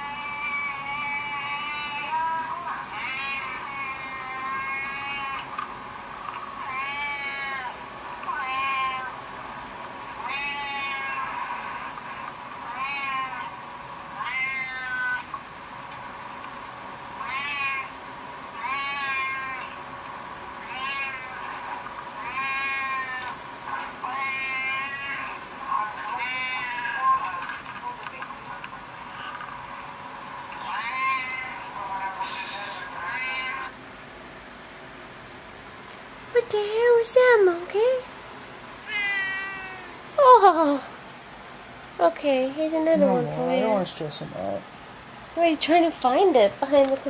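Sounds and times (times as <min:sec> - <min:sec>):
cat meowing: 0:00.0 - 0:05.5, 0:06.6 - 0:09.2, 0:10.2 - 0:11.8, 0:12.7 - 0:13.5, 0:14.2 - 0:15.3, 0:17.2 - 0:17.9, 0:18.6 - 0:19.8, 0:20.6 - 0:21.5, 0:22.2 - 0:23.4, 0:24.0 - 0:25.4, 0:26.1 - 0:27.4, 0:30.6 - 0:33.7, 0:38.8 - 0:40.0.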